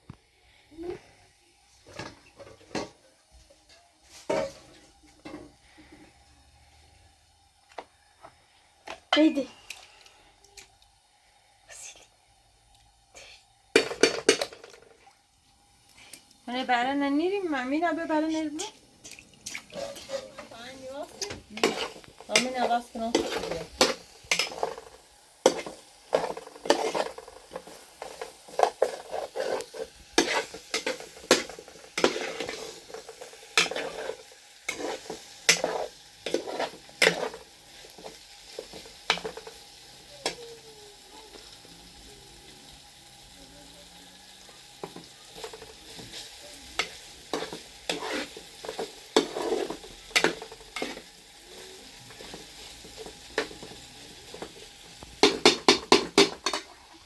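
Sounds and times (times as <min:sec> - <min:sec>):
food sizzling: 0:00.0 - 0:57.0
metal utensil scraping a pan: 0:03.6 - 0:06.0, 0:18.0 - 0:39.6, 0:44.8 - 0:51.2, 0:55.2 - 0:57.0.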